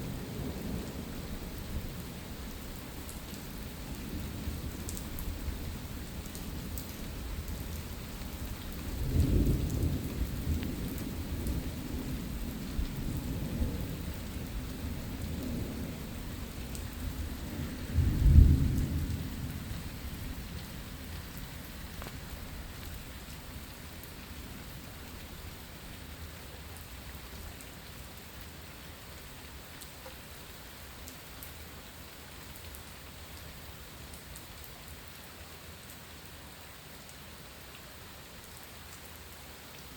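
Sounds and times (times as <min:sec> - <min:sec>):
rain falling: 0:00.0 - 0:39.9
thunder rumbling: 0:08.9 - 0:23.0.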